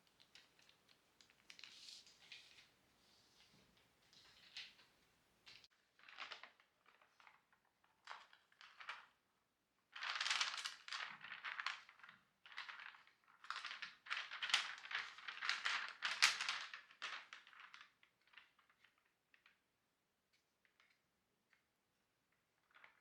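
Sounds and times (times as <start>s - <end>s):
scraping and rustling strokes: 1.5s - 4.4s.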